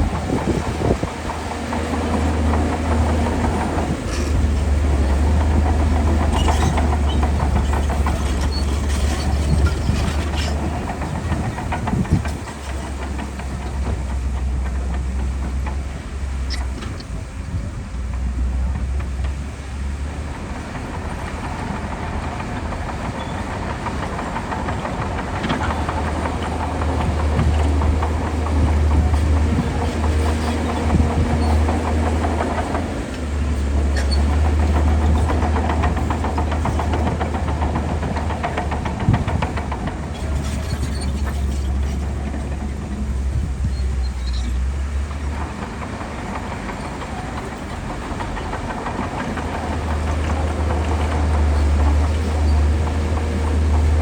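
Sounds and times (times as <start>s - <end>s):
diesel machinery engine rumble: 0.0s - 54.0s.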